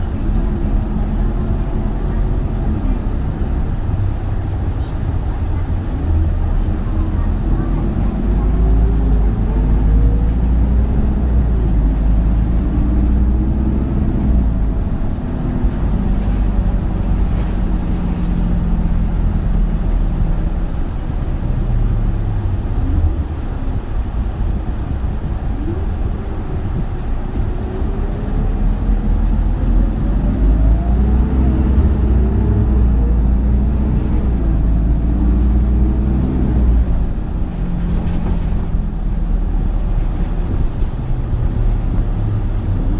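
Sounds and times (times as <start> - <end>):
bus diesel engine shifting gears: 0.0 - 42.9.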